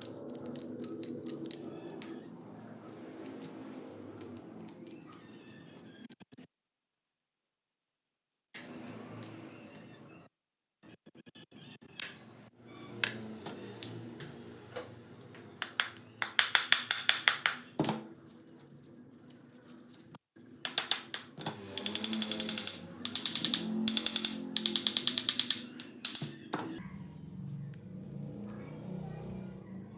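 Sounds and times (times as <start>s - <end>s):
rapid clicks of tool on metal: 21.7s - 26.3s.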